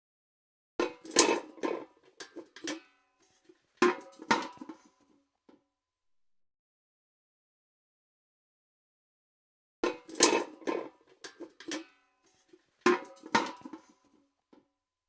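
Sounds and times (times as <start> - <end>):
metal bucket clanking: 0.8 - 4.9, 9.8 - 11.9, 12.9 - 14.0.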